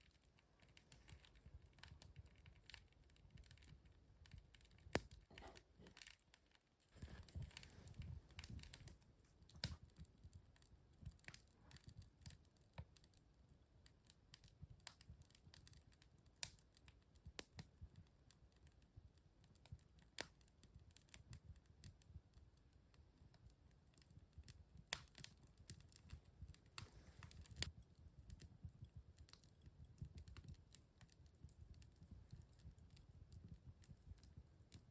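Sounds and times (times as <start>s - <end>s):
low rumble of burning fire: 0.0s - 34.9s
wood fire crackling and popping: 0.0s - 34.9s.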